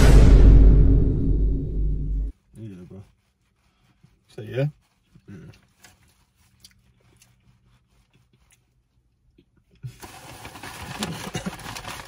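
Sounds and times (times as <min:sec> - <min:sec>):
close-up chewing and mouth smacks: 0:05.1 - 0:09.8.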